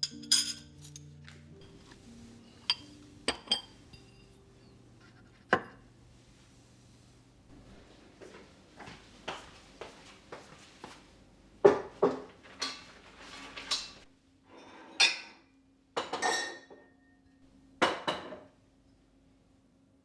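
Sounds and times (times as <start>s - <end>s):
objects knocking and clinking: 2.6s - 4.2s.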